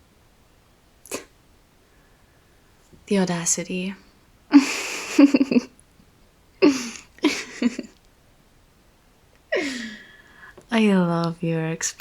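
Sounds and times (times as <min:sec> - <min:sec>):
woman laughing softly: 0:04.5 - 0:05.8, 0:06.6 - 0:08.0, 0:09.5 - 0:10.1.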